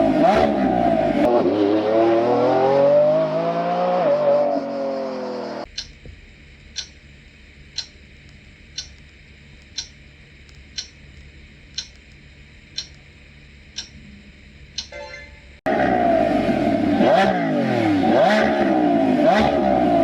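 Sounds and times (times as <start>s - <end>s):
clock ticking: 5.7s - 6.1s, 6.7s - 7.0s, 7.7s - 8.0s, 8.7s - 10.0s, 10.7s - 11.0s, 11.7s - 12.1s, 12.7s - 13.1s, 13.7s - 14.0s, 14.7s - 15.2s
short tone: 14.8s - 15.6s.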